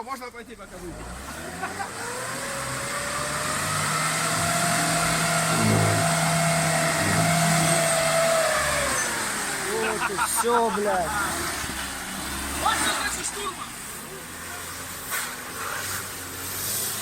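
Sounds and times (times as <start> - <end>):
off-road vehicle engine revving: 0.0 - 17.0
high whine: 4.3 - 9.0.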